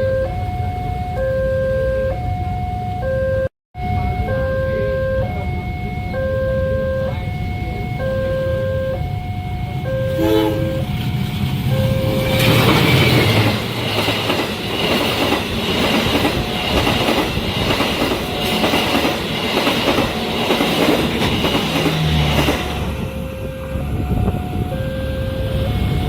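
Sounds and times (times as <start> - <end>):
level crossing alarm tones: 0.0 - 26.0
train wheels clattering over rail joints: 12.3 - 23.0.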